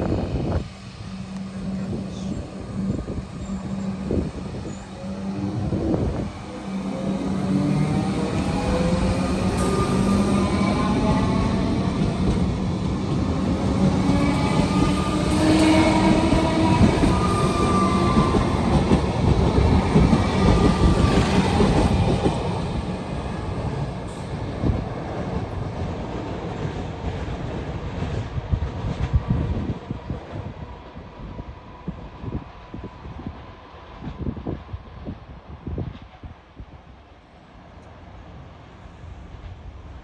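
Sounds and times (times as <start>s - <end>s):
train whining tone: 0.0s - 25.7s
train wheels rumbling on rail: 0.0s - 36.9s.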